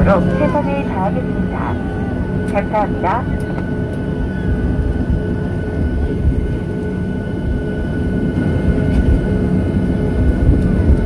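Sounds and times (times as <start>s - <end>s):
faint whining tones: 0.0s - 9.1s
jet engine rumble and rushing air: 0.0s - 11.0s.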